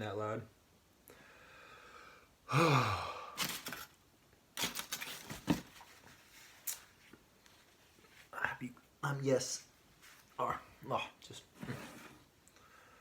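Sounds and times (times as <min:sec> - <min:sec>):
man moaning: 0:02.5 - 0:03.4.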